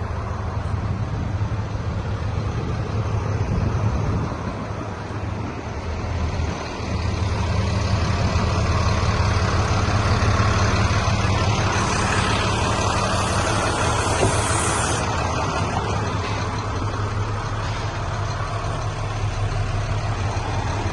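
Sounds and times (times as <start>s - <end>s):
diesel engine running: 0.0s - 20.9s
high hiss: 11.7s - 15.1s.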